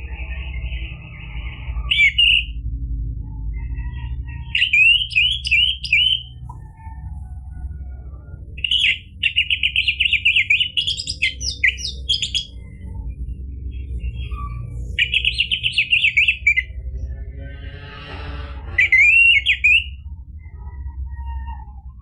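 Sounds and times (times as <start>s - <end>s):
low hum: 0.0s - 22.0s
thrush singing: 4.6s - 6.8s, 8.6s - 13.0s.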